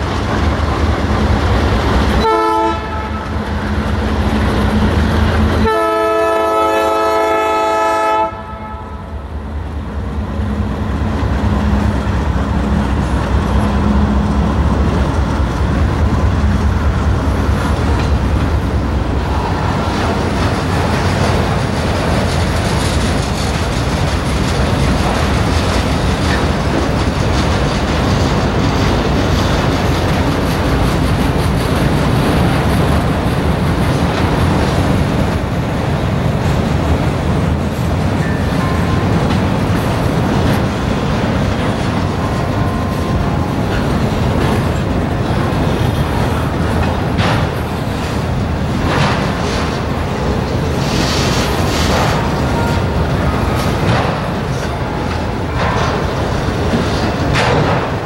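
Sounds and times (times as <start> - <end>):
freight train rumbling and clattering: 0.0 - 58.0
locomotive air horn blast: 2.2 - 3.3, 5.6 - 9.1.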